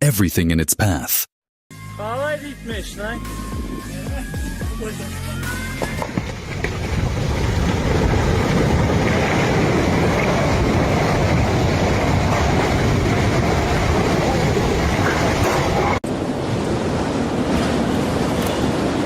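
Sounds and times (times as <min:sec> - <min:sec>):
avalanche rumble of moving snow: 0:06.1 - 0:19.0.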